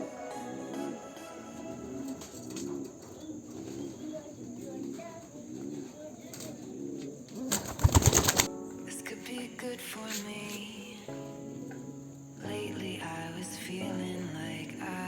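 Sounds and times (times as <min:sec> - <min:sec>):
pigeons cooing: 0:00.0 - 0:08.5.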